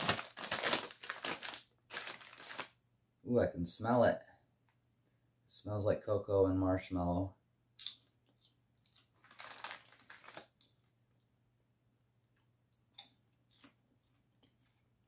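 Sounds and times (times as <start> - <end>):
popcorn crunching: 0.0 - 2.7, 7.8 - 10.7.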